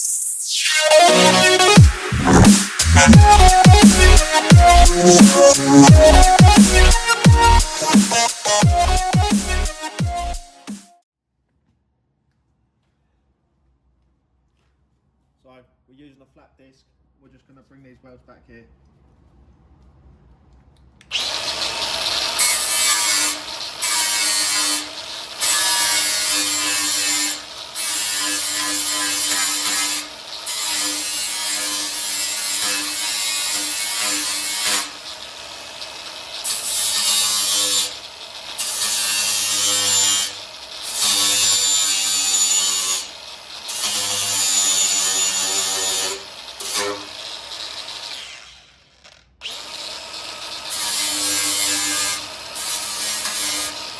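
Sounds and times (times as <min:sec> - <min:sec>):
angle grinder grinding metal: 0:00.4 - 0:10.4, 0:21.1 - 0:53.9.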